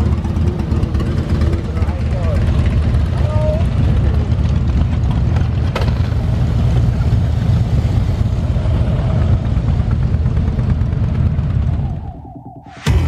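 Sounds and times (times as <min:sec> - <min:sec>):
motorcycle engine running: 0:00.0 - 0:13.0
wind noise: 0:06.2 - 0:13.0.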